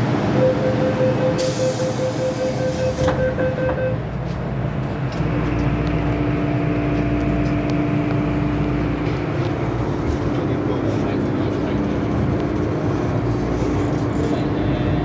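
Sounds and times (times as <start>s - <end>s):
train running rumble: 0.0s - 15.0s
beeping tone: 0.3s - 4.0s.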